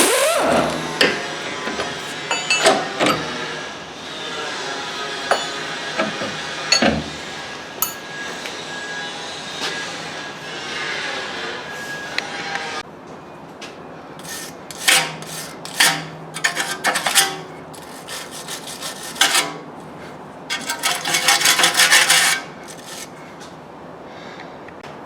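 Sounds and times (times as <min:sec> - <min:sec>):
rasping scraping strokes: 0:00.0 - 0:02.2, 0:14.2 - 0:23.5.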